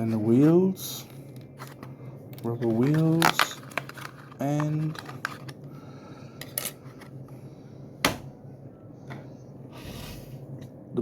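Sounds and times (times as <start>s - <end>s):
packaging rustling: 1.4s - 5.7s.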